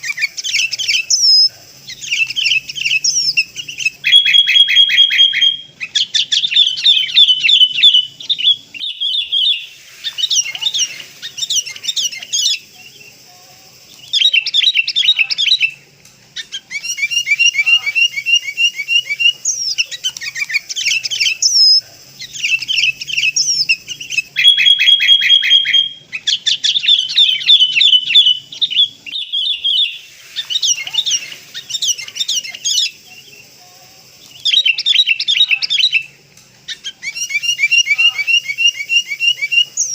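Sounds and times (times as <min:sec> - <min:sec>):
bird chirping: 0:00.0 - 0:39.9
bird held whistle: 0:02.1 - 0:05.7, 0:23.2 - 0:26.0.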